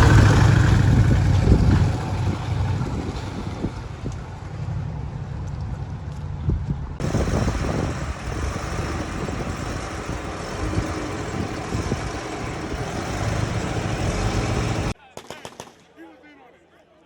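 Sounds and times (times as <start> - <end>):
road and wind noise: 0.0 - 15.0
vehicle rumble: 0.0 - 15.0.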